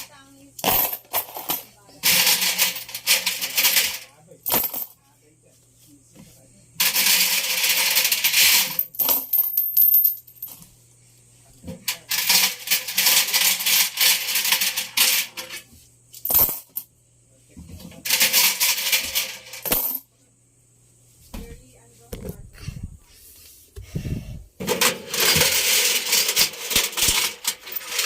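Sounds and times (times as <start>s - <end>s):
coins rattling in washing machine drum: 0.0s - 5.0s, 6.8s - 10.6s, 11.8s - 16.9s, 17.9s - 20.1s, 24.6s - 28.0s.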